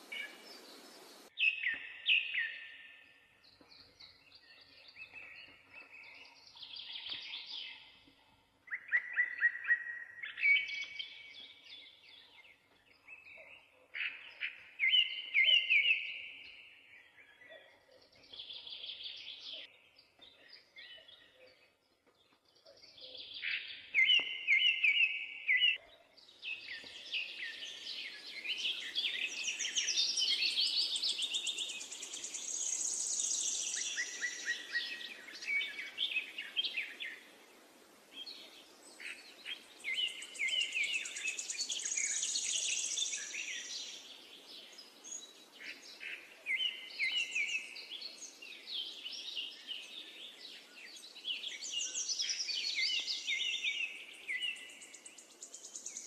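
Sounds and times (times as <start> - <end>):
low background noise: 0.0 - 1.3
birds chirping and trilling: 0.0 - 56.0.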